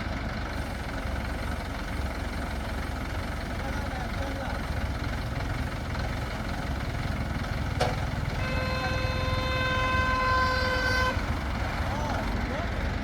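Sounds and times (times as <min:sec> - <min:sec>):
crane engine rumbling: 0:00.0 - 0:13.0
horn held tone: 0:08.4 - 0:11.3.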